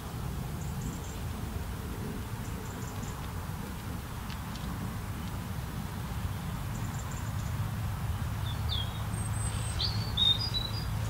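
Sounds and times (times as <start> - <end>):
bird chirping: 6.3 - 11.0.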